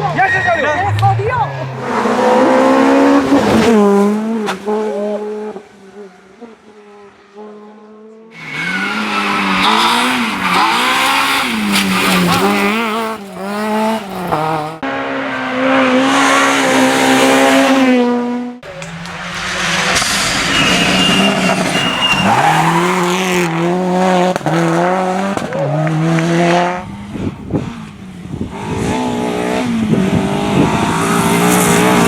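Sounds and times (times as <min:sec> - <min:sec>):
rally car engines revving: 0:00.0 - 0:32.0.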